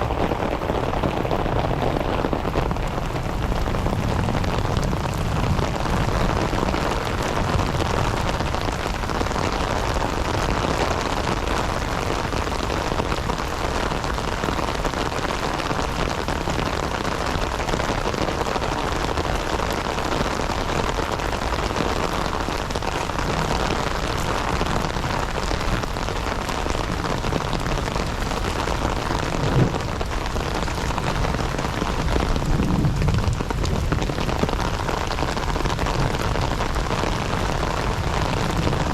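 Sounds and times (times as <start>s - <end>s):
heavy rain falling: 0.0s - 38.9s
low thumps: 29.3s - 30.1s.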